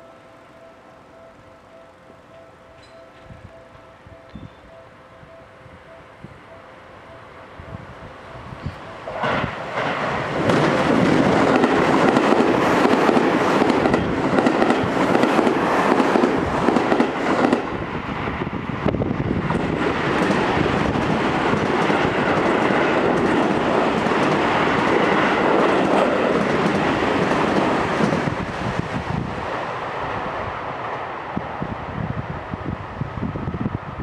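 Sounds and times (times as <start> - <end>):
electric trains passing: 0.0 - 34.0
wheels clacking over rail joints: 8.6 - 17.7.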